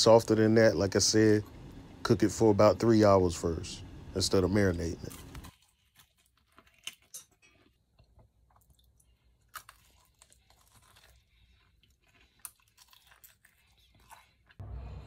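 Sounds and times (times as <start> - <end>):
faint crunching and chewing: 4.7 - 14.6.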